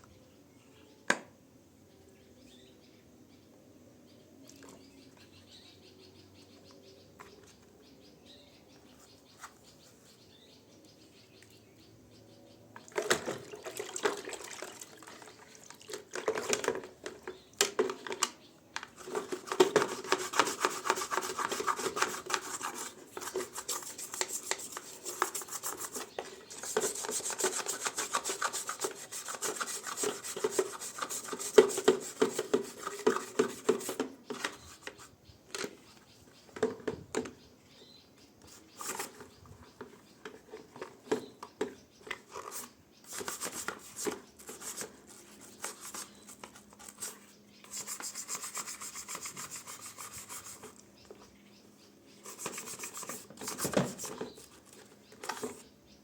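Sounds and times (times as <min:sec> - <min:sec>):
hand scrubbing a surface: 0:19.5 - 0:34.0, 0:46.8 - 0:50.8, 0:52.2 - 0:54.2.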